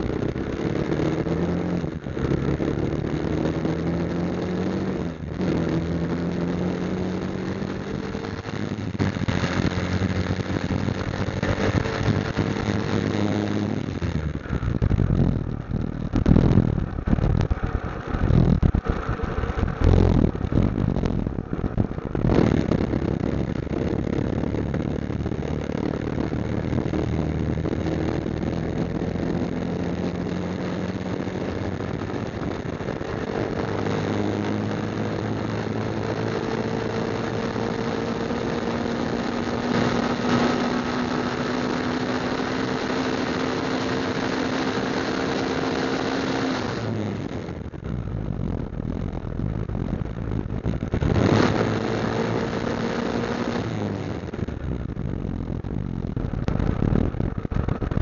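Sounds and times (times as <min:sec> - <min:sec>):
motorcycle engine accelerating: 0:00.0 - 0:58.0
wind buffeting microphone: 0:14.1 - 0:36.0, 0:54.3 - 0:58.0.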